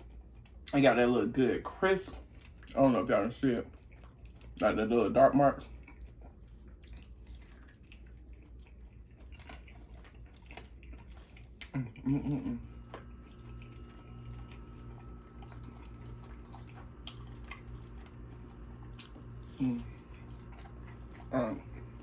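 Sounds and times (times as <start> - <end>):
chewing steak: 0.0 - 22.0
person humming: 11.8 - 12.7.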